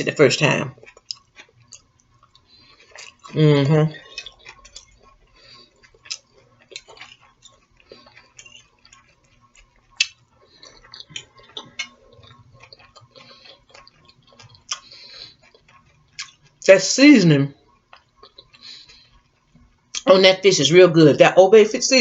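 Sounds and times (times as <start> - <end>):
person chewing: 0.0 - 20.2.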